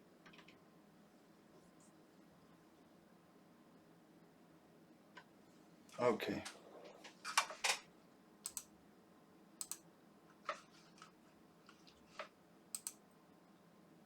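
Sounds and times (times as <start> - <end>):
small button clicks: 12.8 - 13.0.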